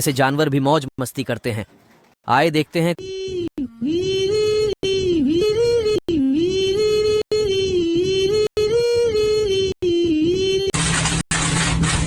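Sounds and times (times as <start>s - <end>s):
voice holding long notes: 2.8s - 10.7s.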